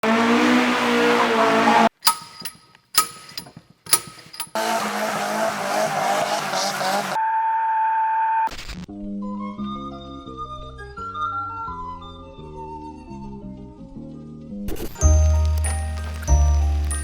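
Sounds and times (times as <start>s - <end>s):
car engine at high revs: 0.0s - 2.2s, 3.9s - 7.2s
sharp hits: 1.9s - 4.6s.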